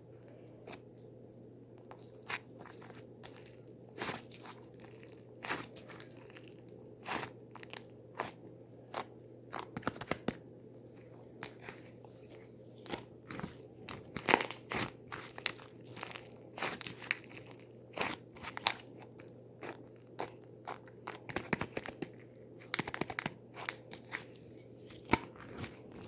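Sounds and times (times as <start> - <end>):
crisp crunching snaps: 1.7 - 10.4, 11.0 - 26.0.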